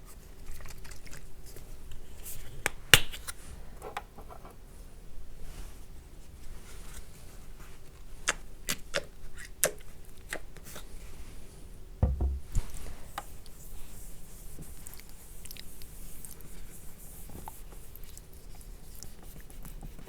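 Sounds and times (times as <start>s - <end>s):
dull low thump: 12.0s - 12.7s.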